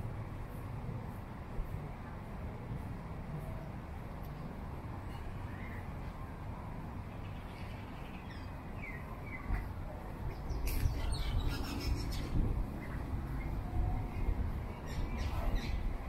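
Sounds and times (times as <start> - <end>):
small birds chirping: 10.3 - 13.6.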